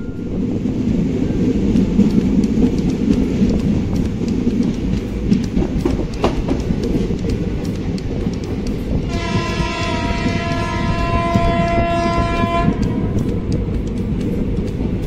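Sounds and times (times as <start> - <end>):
train wheels rumbling: 0.0 - 15.0
sharp clicks: 1.8 - 15.0.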